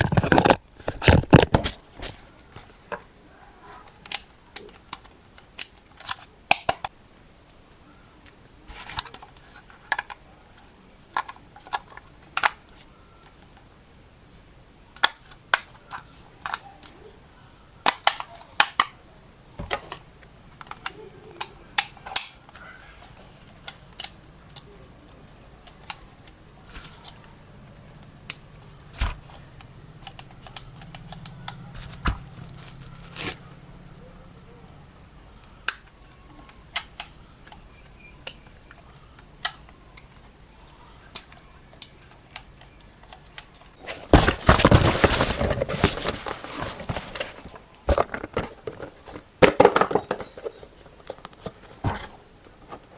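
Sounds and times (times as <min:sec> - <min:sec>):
dense rustling: 0:43.8 - 0:50.0.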